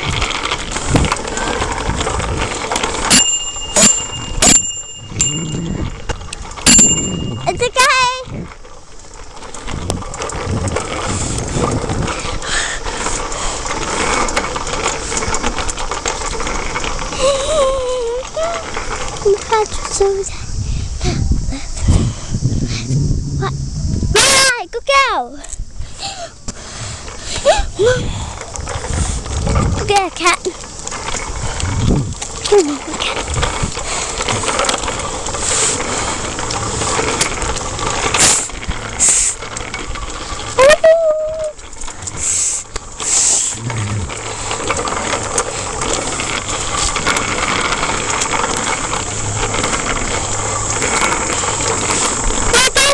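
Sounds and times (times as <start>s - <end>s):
wind rushing on microphone: 0.0s - 2.9s, 5.0s - 8.7s, 9.6s - 14.1s, 19.7s - 24.5s, 25.4s - 39.0s
bicycle tyres rolling on rough surface: 0.0s - 52.9s.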